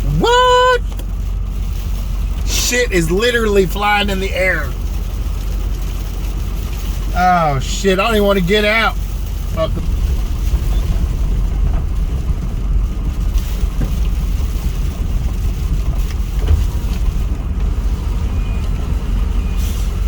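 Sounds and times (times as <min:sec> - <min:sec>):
wind buffeting microphone: 0:09.1 - 0:20.0.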